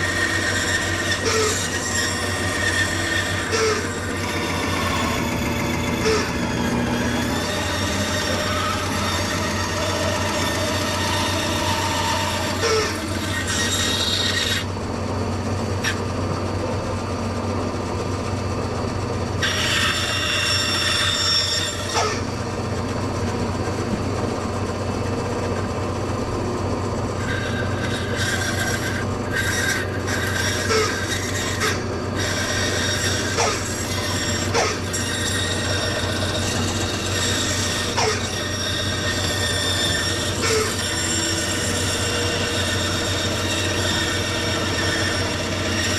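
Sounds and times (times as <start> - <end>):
power tool rasping into wood: 0.0 - 14.8, 19.4 - 22.4, 27.2 - 45.9.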